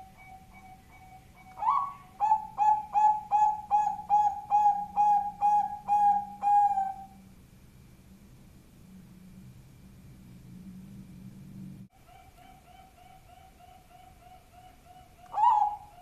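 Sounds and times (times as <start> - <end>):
dove cooing: 0.0 - 7.2, 11.9 - 16.0.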